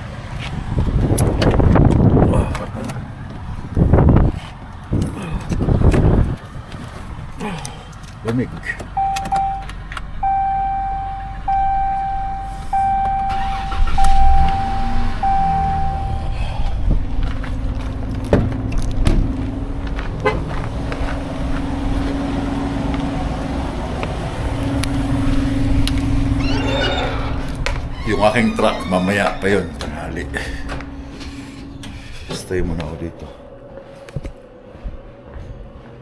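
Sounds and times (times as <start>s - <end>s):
vehicle engine drone: 0.0s - 36.0s
electronic beeps: 9.0s - 16.4s.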